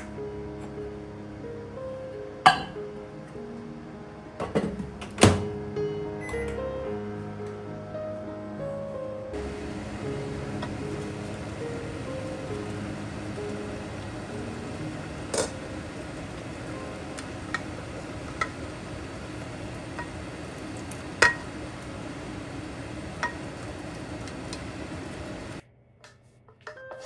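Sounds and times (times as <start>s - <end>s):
dishes and utensils clinking: 2.5s - 2.8s
background hiss: 6.4s - 25.6s.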